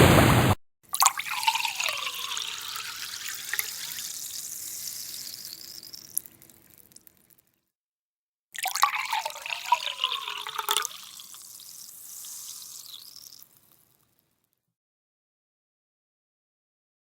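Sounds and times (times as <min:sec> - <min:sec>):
water filling a container: 0:00.9 - 0:07.4, 0:08.6 - 0:13.9.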